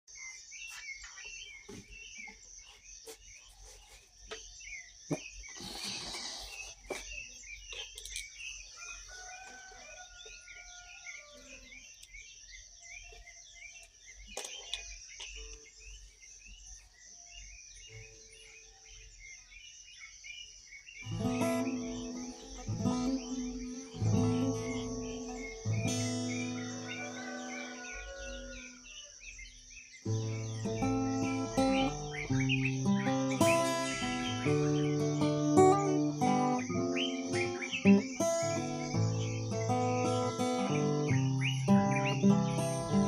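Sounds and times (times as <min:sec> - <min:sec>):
small birds chirping: 0:00.0 - 0:43.0
rooster crowing: 0:08.7 - 0:11.8, 0:23.6 - 0:29.2, 0:33.4 - 0:35.4.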